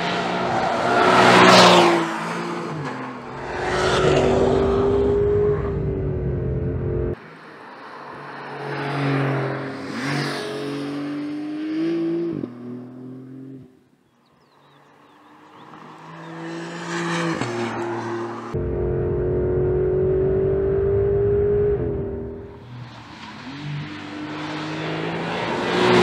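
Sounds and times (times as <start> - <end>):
car engine accelerating past: 1.0 - 7.2, 15.8 - 26.0.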